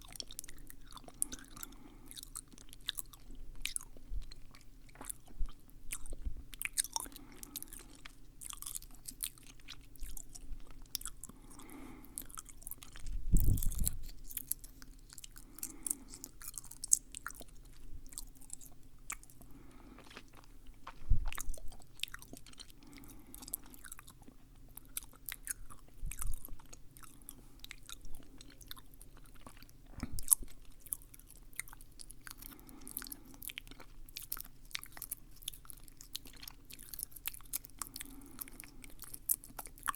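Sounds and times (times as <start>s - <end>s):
wet mouth clicks and smacks: 13.0s - 14.6s.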